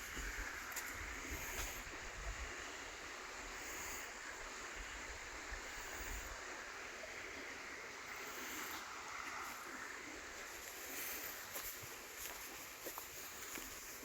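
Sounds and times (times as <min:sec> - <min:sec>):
wind rumbling on microphone: 0:00.0 - 0:02.7.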